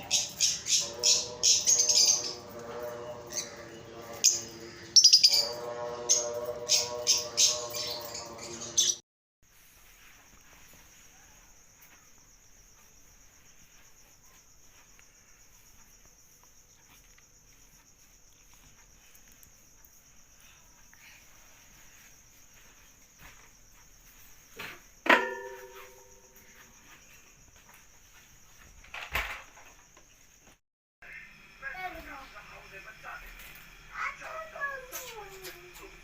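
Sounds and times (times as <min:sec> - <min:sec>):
insects chirring: 0:00.0 - 0:36.0
loud sharp ringing knock: 0:25.0 - 0:26.2.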